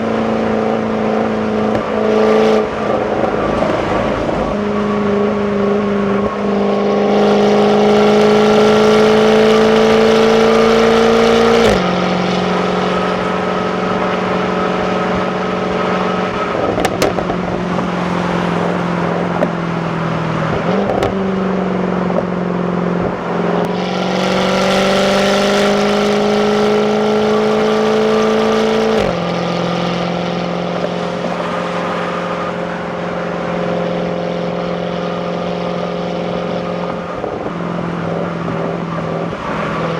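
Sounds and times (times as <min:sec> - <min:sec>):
car engine accelerating through gears: 0:00.0 - 0:39.9.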